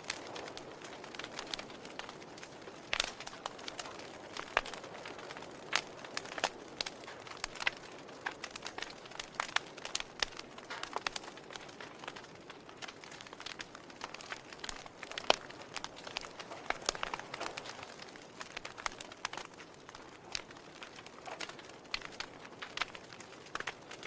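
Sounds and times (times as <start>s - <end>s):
fire crackling: 0.0s - 24.0s.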